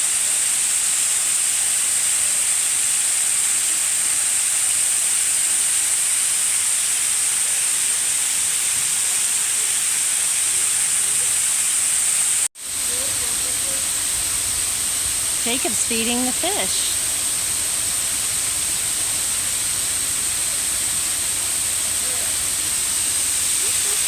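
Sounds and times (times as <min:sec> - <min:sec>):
waterfall rushing: 0:10.9 - 0:24.0.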